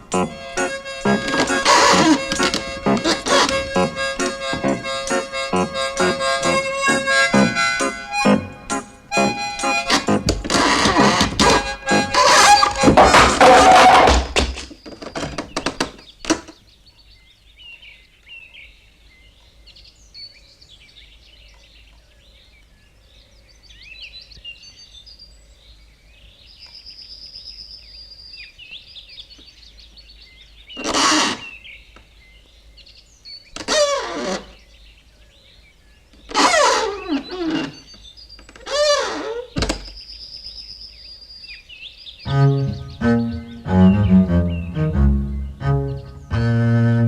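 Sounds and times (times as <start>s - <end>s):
birds chirping faintly: 0.0s - 47.0s
clicks: 0.1s - 7.1s.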